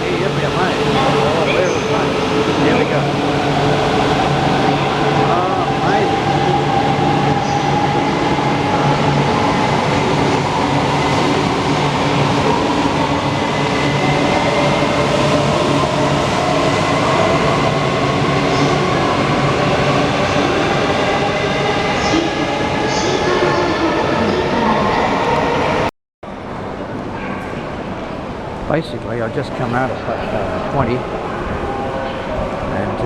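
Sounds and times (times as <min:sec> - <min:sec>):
train rumble: 0:00.0 - 0:24.9.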